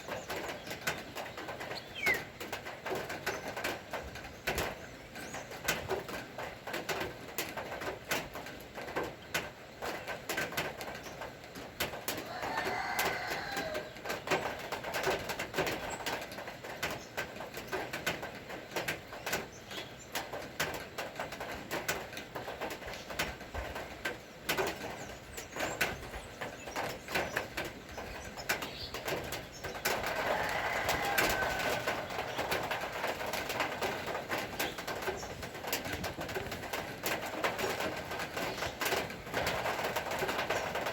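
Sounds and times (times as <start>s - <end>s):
bird calling: 0.0s - 2.4s
rain falling: 0.0s - 40.9s.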